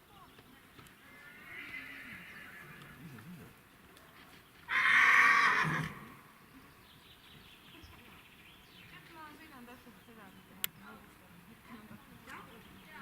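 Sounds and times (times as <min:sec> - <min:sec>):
horse whinnying: 0:01.1 - 0:03.0, 0:04.7 - 0:06.2.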